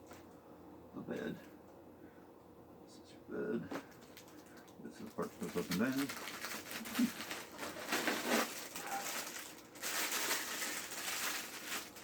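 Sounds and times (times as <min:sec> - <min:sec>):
packaging rustling and crinkling: 0:03.7 - 0:12.0.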